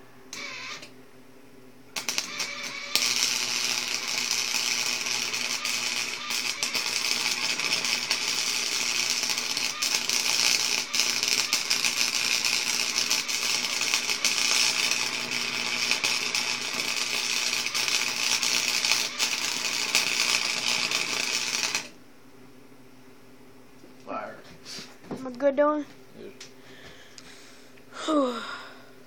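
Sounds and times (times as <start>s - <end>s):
electric arc welding crackling: 0.4s - 0.9s, 2.0s - 22.0s.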